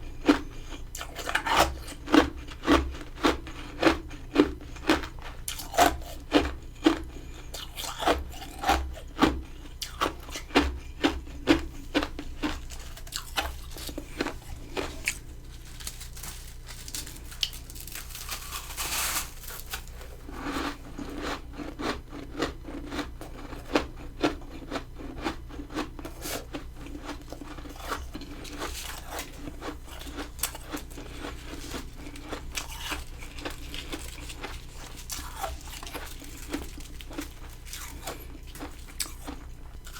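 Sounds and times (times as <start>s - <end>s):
crunching frost being chewed: 0.0s - 39.9s
grinding scrape: 12.7s - 20.8s.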